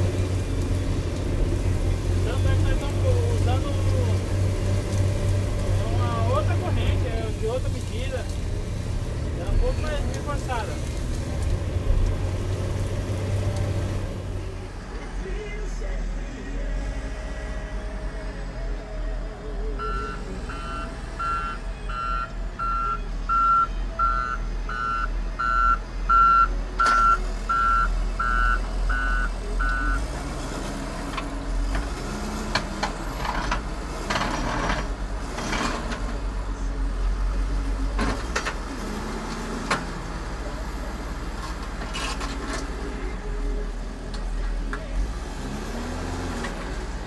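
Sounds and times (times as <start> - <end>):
diesel engine running: 0.0 - 47.0
reversing alarm beeping: 19.8 - 30.0.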